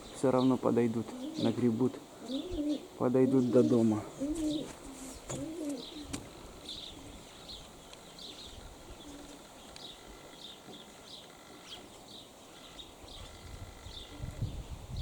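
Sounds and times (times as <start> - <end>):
small birds chirping: 0.0 - 15.0
faint pigeon coos: 1.0 - 7.6, 8.8 - 9.4, 13.1 - 15.0
wind rumble on microphone: 13.1 - 15.0.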